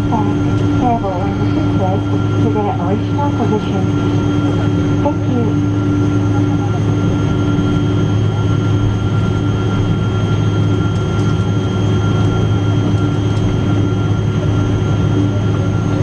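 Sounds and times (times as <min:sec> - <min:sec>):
airplane cabin engine drone: 0:00.0 - 0:16.0.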